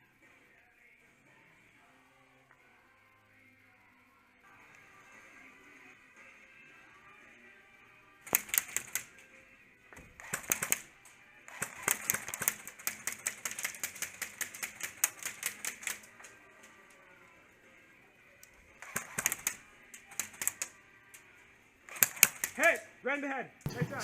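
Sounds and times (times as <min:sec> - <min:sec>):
airsoft guns firing: 0:08.2 - 0:09.2, 0:10.0 - 0:16.8, 0:18.7 - 0:20.8, 0:21.8 - 0:22.8.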